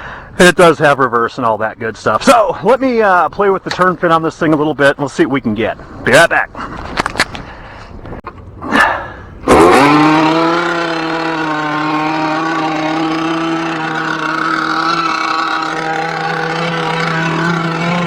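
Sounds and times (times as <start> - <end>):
two-stroke model boat engine: 9.4 - 18.0.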